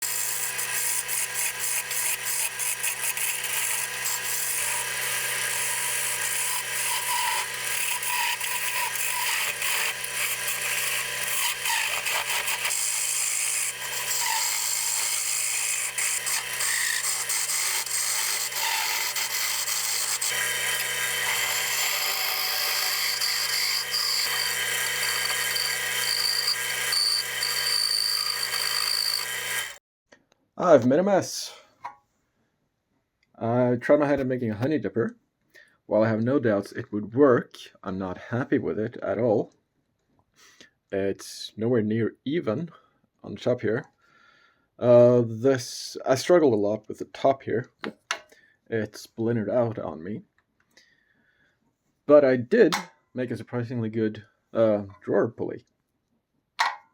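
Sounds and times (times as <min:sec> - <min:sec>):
turning tool scraping wood: 0:00.0 - 0:29.8
wood lathe motor hum: 0:00.0 - 0:29.8.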